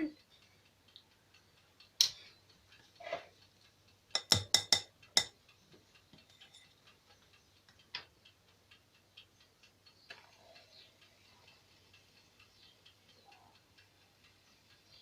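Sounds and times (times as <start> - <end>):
utensil knocking against bowl: 4.2 - 5.3.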